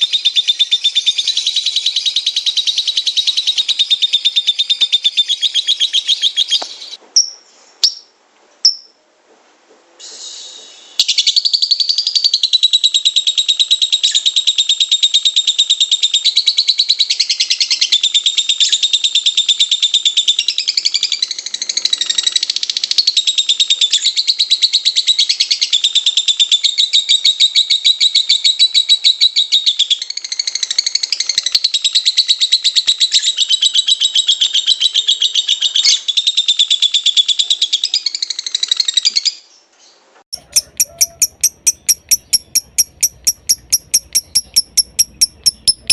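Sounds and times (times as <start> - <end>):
bird chattering trill: 40.4 - 45.9.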